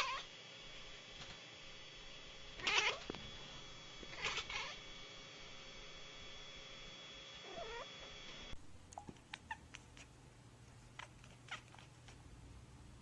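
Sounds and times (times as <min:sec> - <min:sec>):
cat meowing: 0:00.0 - 0:00.3, 0:02.6 - 0:03.1, 0:04.1 - 0:04.8, 0:07.4 - 0:07.9
low hum: 0:00.0 - 0:11.0.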